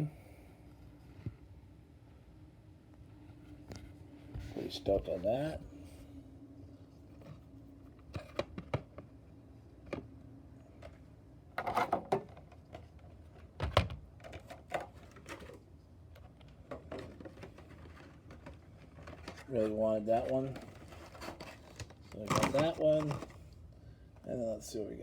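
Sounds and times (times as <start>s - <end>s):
toy car and packaging handled: 11.6s - 23.6s.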